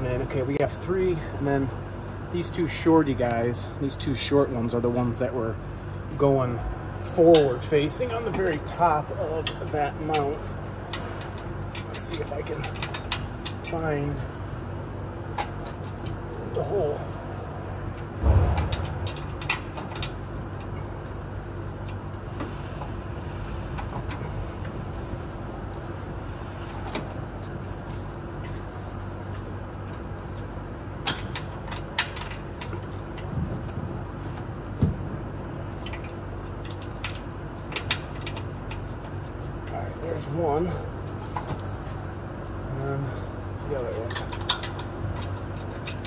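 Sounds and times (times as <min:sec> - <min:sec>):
mechanical hum: 0:00.0 - 0:46.0
metal clicks and knocks: 0:18.2 - 0:20.8.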